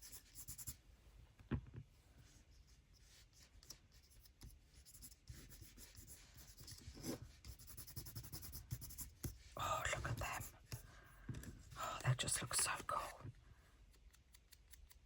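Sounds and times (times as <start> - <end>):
scratchy rubbing on paper: 0.0 - 0.8, 2.5 - 10.8.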